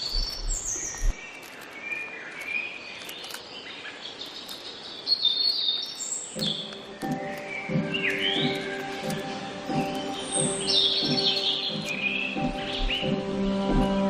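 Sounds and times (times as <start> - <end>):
songbirds chirping: 0.0 - 14.0
music: 6.4 - 14.0.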